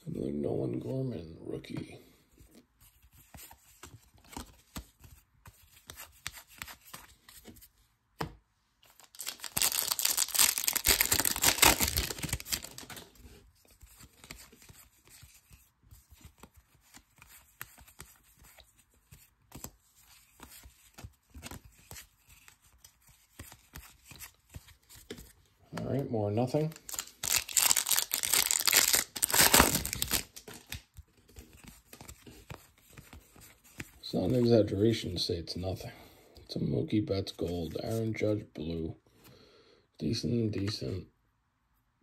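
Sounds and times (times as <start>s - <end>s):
trading cards rustling: 2.9s - 7.7s, 8.8s - 34.4s
wrapper tearing open: 9.0s - 13.1s, 26.7s - 30.9s.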